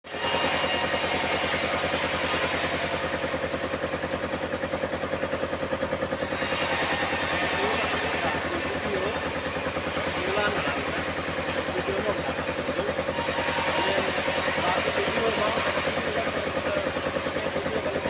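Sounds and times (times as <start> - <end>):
sawmill engine running: 0.0 - 18.0.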